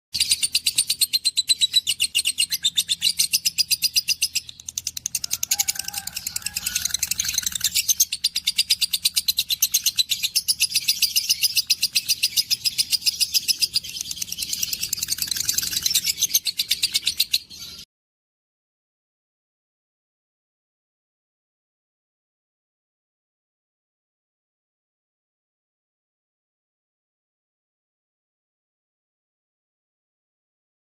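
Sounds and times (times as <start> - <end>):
budgerigars chattering: 5.1 - 17.8.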